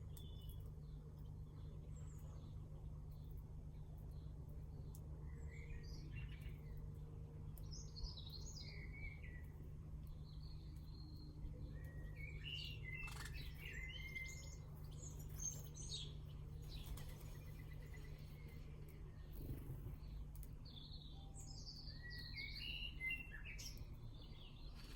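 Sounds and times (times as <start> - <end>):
birds chirping and warbling: 7.6 - 24.9
steady low hum: 9.1 - 24.9.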